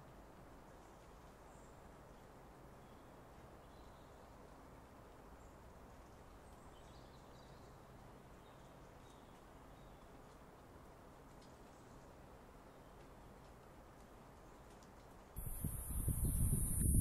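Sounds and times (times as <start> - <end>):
light ticks: 7.7 - 15.7
small birds chirping: 15.4 - 17.0.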